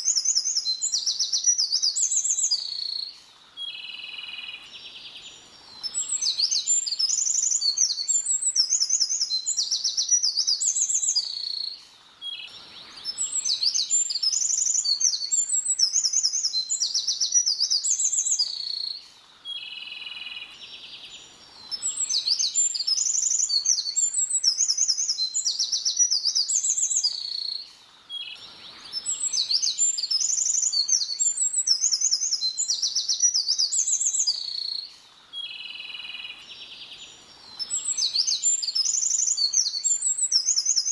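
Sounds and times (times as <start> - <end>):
bird chirping softly: 0.0 - 40.9
songbird singing rapid high notes: 37.6 - 40.9.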